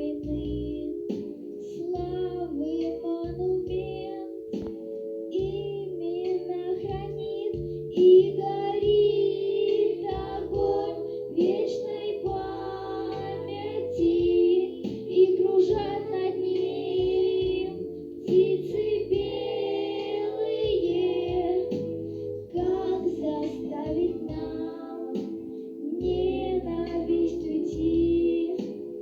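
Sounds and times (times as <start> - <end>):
backing track with bass line: 0.0 - 29.0
high child-like voice singing: 5.4 - 19.3.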